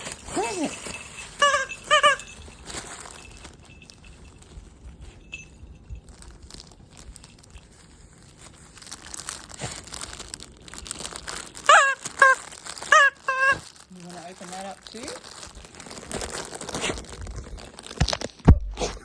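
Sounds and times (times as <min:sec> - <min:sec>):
squeaky toy squeaks: 0:00.0 - 0:02.6, 0:11.6 - 0:13.8
dog tearing plastic bag: 0:00.0 - 0:04.6, 0:06.1 - 0:18.5.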